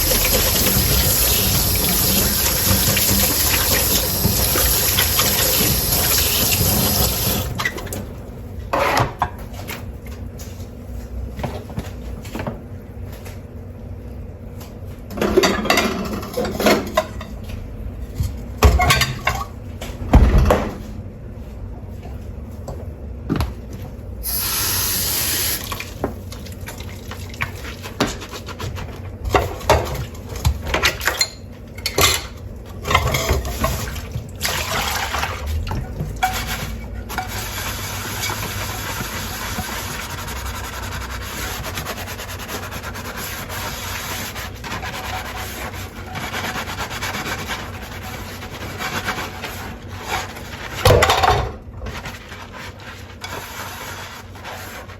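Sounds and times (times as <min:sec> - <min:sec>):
tap water running and splashing: 0:00.0 - 0:07.6, 0:24.2 - 0:28.2, 0:33.3 - 0:36.5, 0:37.1 - 0:40.6
dishes scrubbed and clinking: 0:00.0 - 0:07.9, 0:15.2 - 0:17.6, 0:18.2 - 0:19.6, 0:26.7 - 0:54.9.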